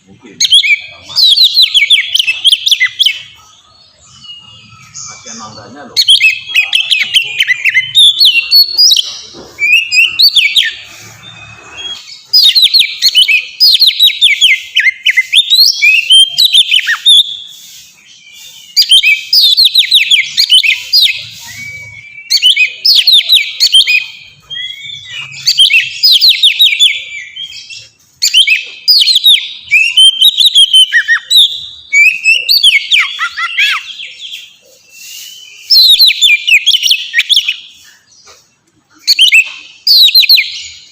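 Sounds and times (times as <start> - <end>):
songbird singing whistles and trills: 0.2 - 40.9.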